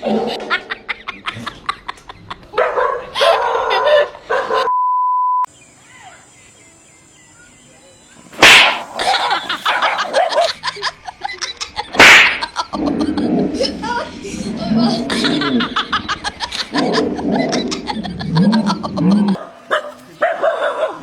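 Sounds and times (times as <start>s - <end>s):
dog barking: 2.5s - 4.7s, 8.4s - 10.6s, 19.4s - 21.0s
short steady beep: 4.7s - 5.5s.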